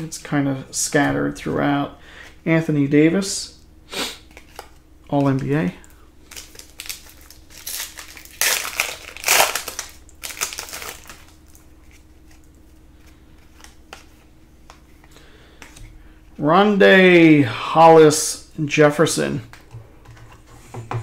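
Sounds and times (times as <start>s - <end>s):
card packaging crinkling: 4.3s - 14.2s.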